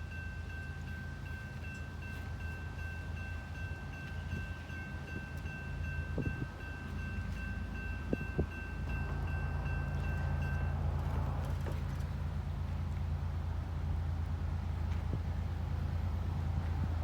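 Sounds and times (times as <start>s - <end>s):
crossing bell ringing: 0.0s - 12.0s.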